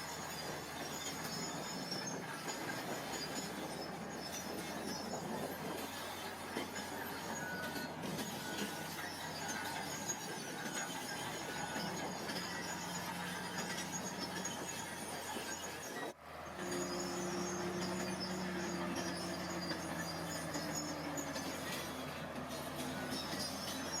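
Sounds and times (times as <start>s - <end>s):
heavy machinery running: 0.0s - 24.0s
metallic squeal of tracks: 0.0s - 24.0s.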